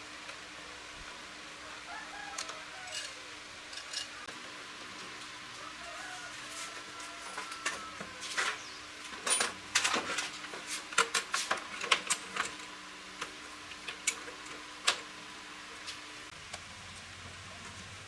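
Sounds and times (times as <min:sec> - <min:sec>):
tools and metal parts clicking: 0:02.4 - 0:04.2, 0:08.4 - 0:10.3.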